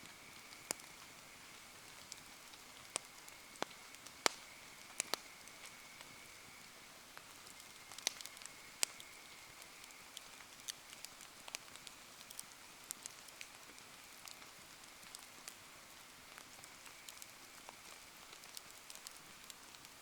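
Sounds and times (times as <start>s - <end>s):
bonfire crackling: 0.0s - 20.0s.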